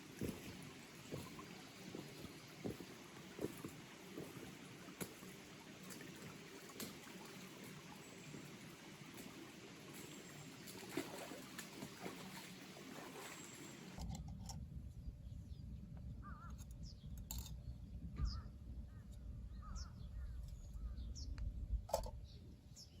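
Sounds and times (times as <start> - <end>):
birds calling: 0.0 - 14.0, 18.2 - 21.3
stream water running: 0.0 - 14.0.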